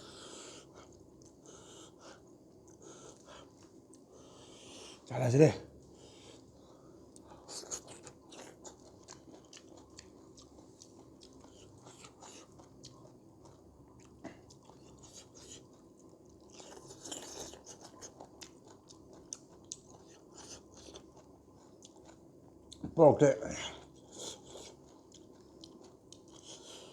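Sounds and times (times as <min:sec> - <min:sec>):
person chewing crunchy food: 0:07.1 - 0:22.8, 0:23.6 - 0:26.9.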